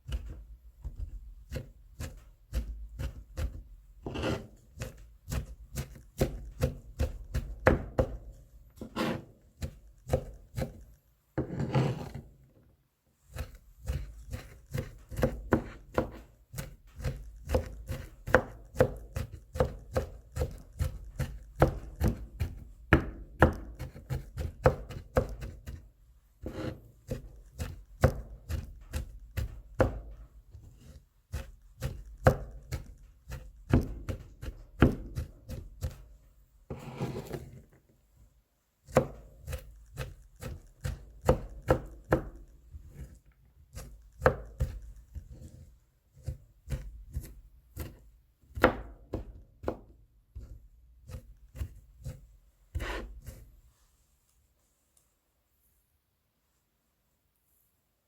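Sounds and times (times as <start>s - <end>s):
knife scraping cutting board: 0.1s - 7.5s, 8.8s - 12.3s, 13.3s - 22.6s, 23.4s - 25.8s, 26.4s - 29.6s, 30.6s - 36.0s, 36.7s - 37.7s, 38.9s - 48.0s, 50.4s - 53.6s
knife chopping on cutting board: 0.1s - 12.2s, 13.3s - 25.8s, 26.4s - 36.0s, 38.9s - 45.6s, 46.2s - 53.5s.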